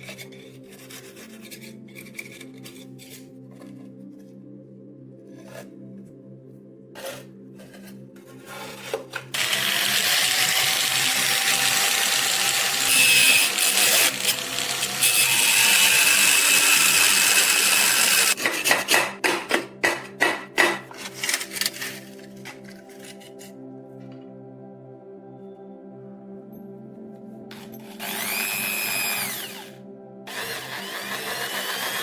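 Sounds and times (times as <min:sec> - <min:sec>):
quiet background music: 0:00.0 - 0:32.0
power tool grinding: 0:09.2 - 0:18.4, 0:27.5 - 0:32.0.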